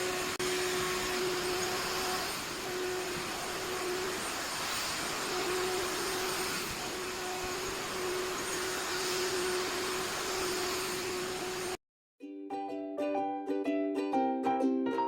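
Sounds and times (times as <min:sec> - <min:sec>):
vacuum cleaner running: 0:00.0 - 0:11.8.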